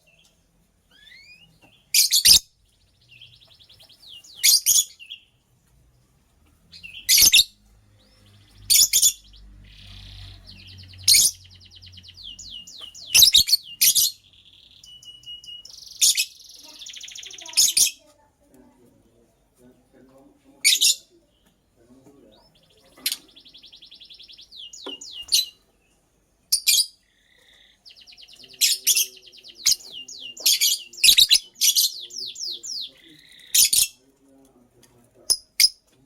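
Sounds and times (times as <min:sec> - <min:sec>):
lovebird chirping: 0:00.0 - 0:05.4, 0:06.7 - 0:18.1, 0:20.6 - 0:34.0
bird chattering trills: 0:06.7 - 0:07.6, 0:08.4 - 0:18.1, 0:22.3 - 0:25.6, 0:26.6 - 0:34.0.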